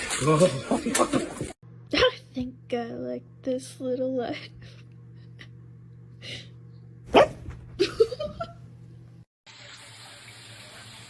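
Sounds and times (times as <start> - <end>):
dog barking: 7.1 - 7.6
dog yipping: 7.1 - 7.6.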